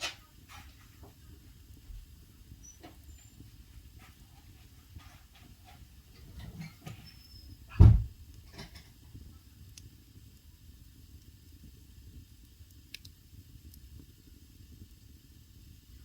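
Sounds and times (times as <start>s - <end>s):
wood fire crackling and popping: 0.0s - 16.0s
deep thump: 7.7s - 8.2s.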